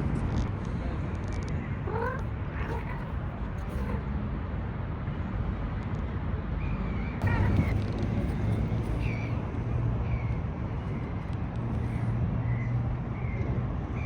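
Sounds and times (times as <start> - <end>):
low background rumble: 0.0 - 5.2, 7.2 - 13.3
cat meowing: 1.8 - 4.1, 7.2 - 7.8.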